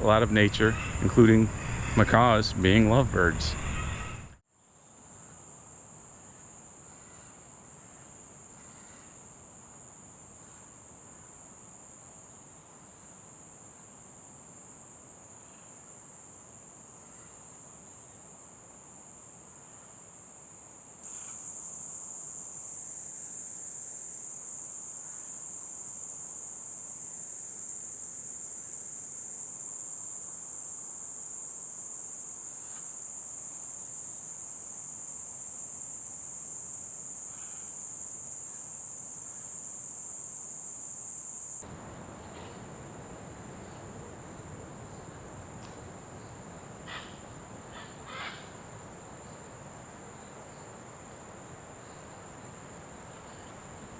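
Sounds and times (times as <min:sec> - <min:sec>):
insects buzzing drone: 0:00.0 - 0:53.9
faint short calls: 0:46.8 - 0:48.6.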